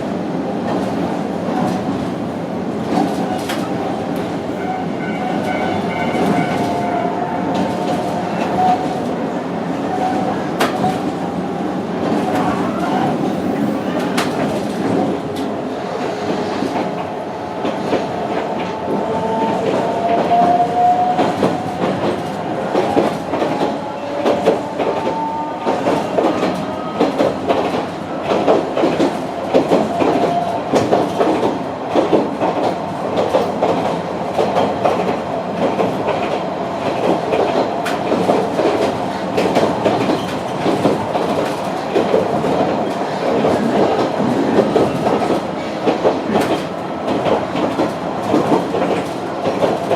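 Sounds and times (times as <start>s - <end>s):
clickety-clack over rail joints: 0.0s - 49.9s
train wheels rumbling on rails: 0.0s - 49.9s.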